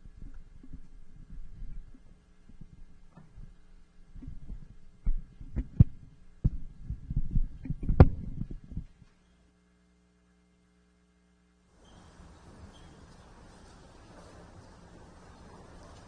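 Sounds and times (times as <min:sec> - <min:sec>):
microphone handling thumps: 0:04.2 - 0:09.1.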